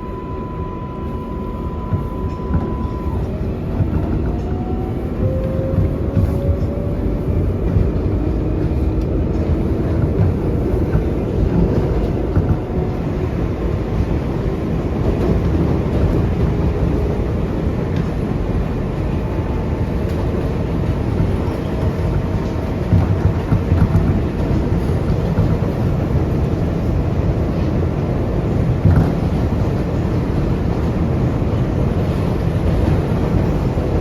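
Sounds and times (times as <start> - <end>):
wheels rumbling on rail: 0.0 - 34.0.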